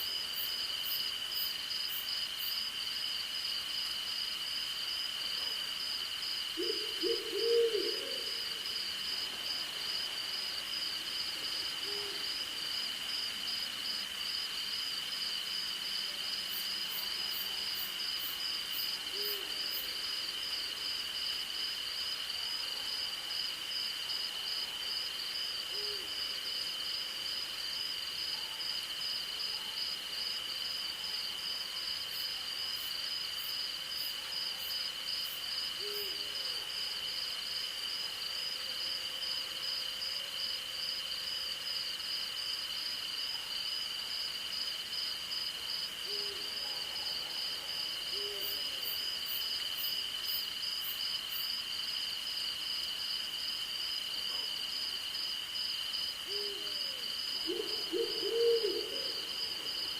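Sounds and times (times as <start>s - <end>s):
crickets chirping: 0.0s - 59.9s
owl hooting: 6.6s - 8.4s, 56.3s - 59.3s.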